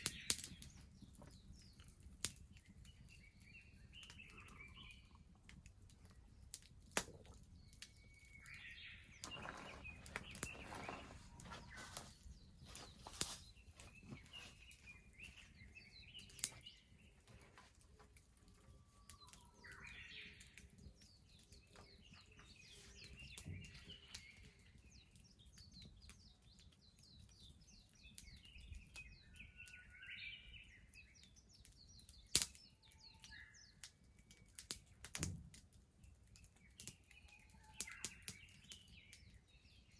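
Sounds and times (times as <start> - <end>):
small birds chirping: 0.0 - 39.9
wood bonfire crackling: 0.0 - 39.9
sharp pops of fire: 32.3 - 32.7, 34.6 - 35.6.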